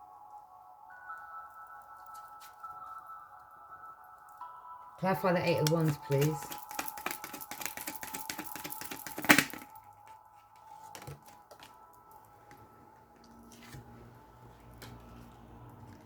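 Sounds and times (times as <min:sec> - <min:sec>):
cards shuffled by hand: 0:05.6 - 0:09.7.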